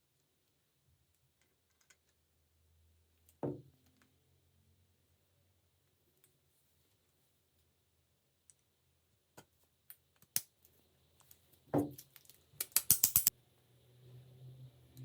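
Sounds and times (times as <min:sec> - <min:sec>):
sharp clicks and knocks: 0:11.8 - 0:13.3.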